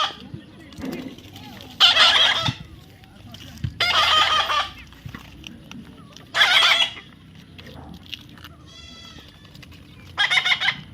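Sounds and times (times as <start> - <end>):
parrot screeching: 1.8 - 2.5, 3.8 - 4.7, 10.2 - 10.8.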